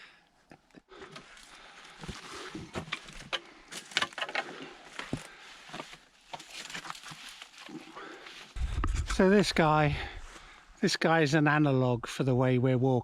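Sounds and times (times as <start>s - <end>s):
twigs crackling and snapping: 1.1s - 10.6s.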